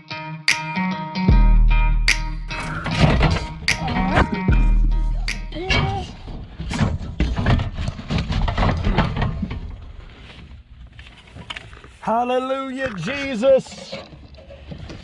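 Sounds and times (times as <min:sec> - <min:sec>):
sheet metal knocking and rattling: 0:05.5 - 0:10.0.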